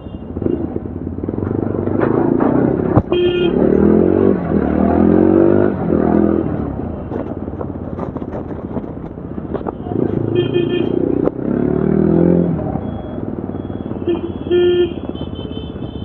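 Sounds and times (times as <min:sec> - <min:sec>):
vehicle horn toot: 0:00.0 - 0:00.7, 0:03.1 - 0:03.8, 0:09.6 - 0:11.1, 0:13.0 - 0:16.0
motorcycle engine revving: 0:00.0 - 0:16.0.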